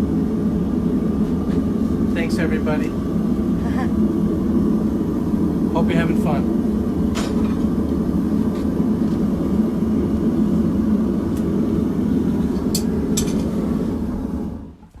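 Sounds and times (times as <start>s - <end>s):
forge roaring: 0.0s - 15.0s.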